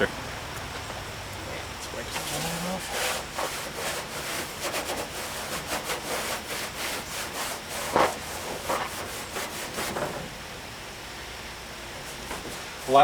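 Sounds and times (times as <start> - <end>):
hand rubbing painted steel: 2.1 - 10.0.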